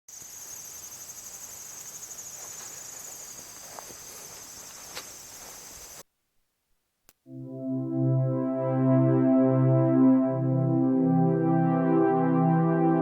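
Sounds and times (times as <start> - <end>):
insects trilling: 0.1 - 6.0.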